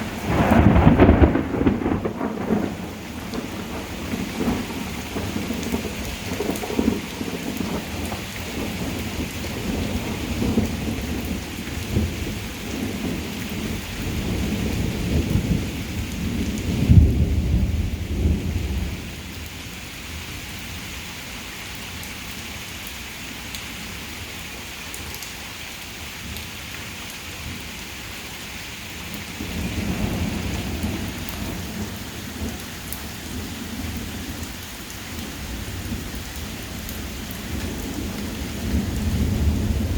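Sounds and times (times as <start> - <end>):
thunder rumbling: 0.0 - 19.1, 29.2 - 34.5, 35.1 - 39.9
heavy rain pouring: 0.0 - 39.9.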